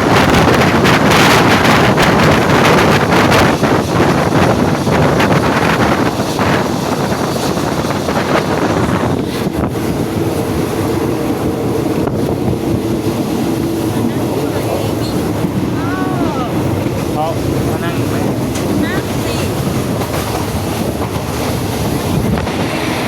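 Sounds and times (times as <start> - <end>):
moving passenger train: 0.0 - 23.0
wind buffeting microphone: 0.0 - 23.0.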